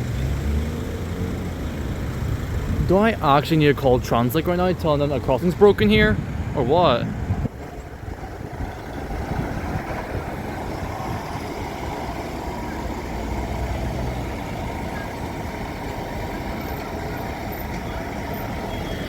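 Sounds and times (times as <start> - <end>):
road traffic rumble: 0.0 - 19.0
deep engine drone: 6.2 - 19.0.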